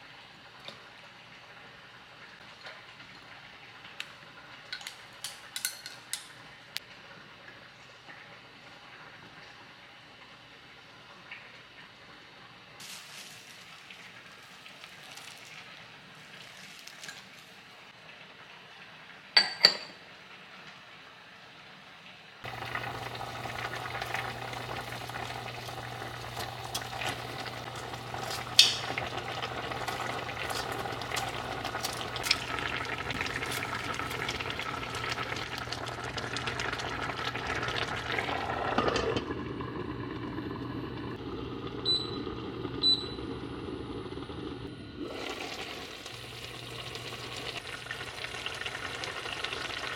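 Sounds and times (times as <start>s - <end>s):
food sizzling in frying pan: 12.8s - 17.8s, 22.4s - 41.2s, 45.0s - 49.9s.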